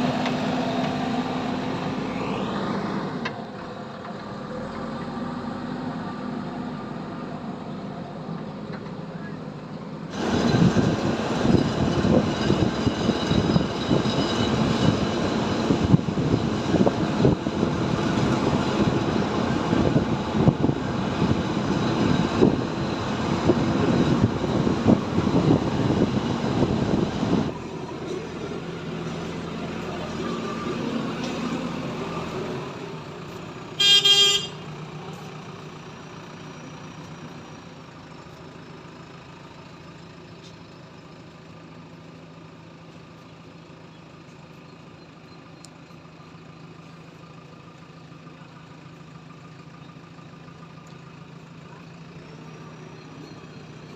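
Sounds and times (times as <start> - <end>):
tractor diesel engine running: 0.0 - 53.9
vehicle horn toot: 33.8 - 34.7.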